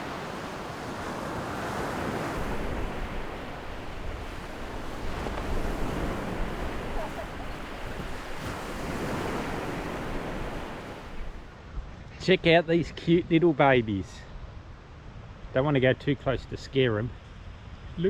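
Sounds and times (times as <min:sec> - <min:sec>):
wind buffeting microphone: 0:00.0 - 0:11.5
waves breaking on beach: 0:00.0 - 0:11.7.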